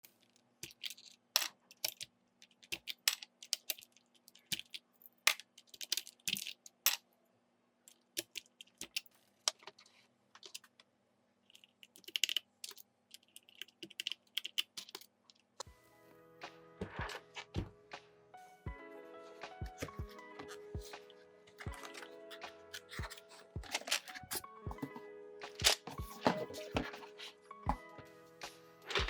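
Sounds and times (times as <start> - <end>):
mechanical keyboard typing: 11.6 - 12.4, 13.2 - 15.0
music: 15.6 - 29.0.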